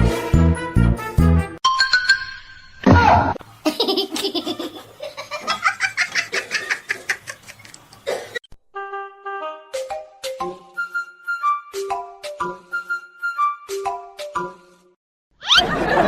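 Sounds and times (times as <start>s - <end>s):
hearty laughter: 3.7s - 7.7s, 15.5s - 16.0s
light music: 8.8s - 14.9s.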